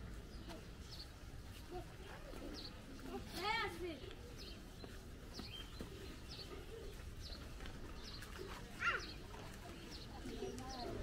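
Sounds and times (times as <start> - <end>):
faint low bird calls: 4.0 - 11.0.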